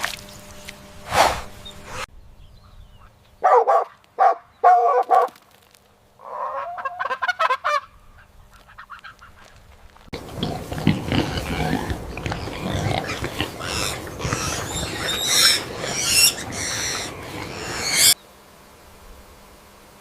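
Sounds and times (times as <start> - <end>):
farm birds calling: 6.2 - 9.6, 10.2 - 18.2
noisy animal sound: 6.2 - 9.6, 10.2 - 18.3.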